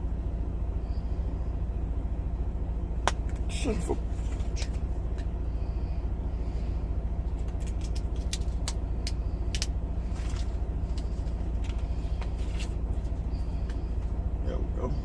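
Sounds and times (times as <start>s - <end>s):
diesel truck engine idling: 0.0s - 15.0s
sharp clicks and rattles: 7.3s - 14.1s.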